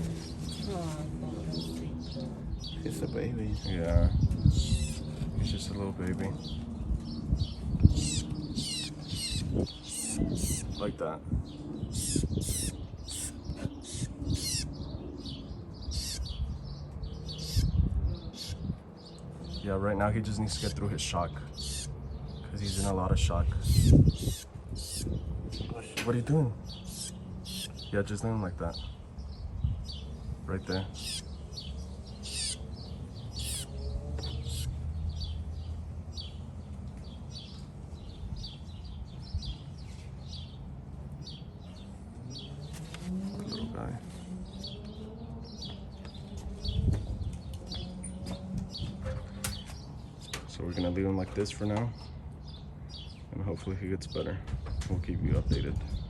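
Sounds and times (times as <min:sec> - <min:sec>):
small bird chirping: 0:00.0 - 0:19.7, 0:20.4 - 0:43.9.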